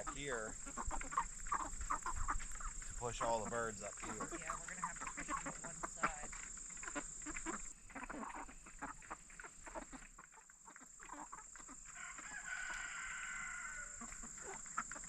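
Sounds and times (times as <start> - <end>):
chickens clucking and calling: 0.0 - 15.0.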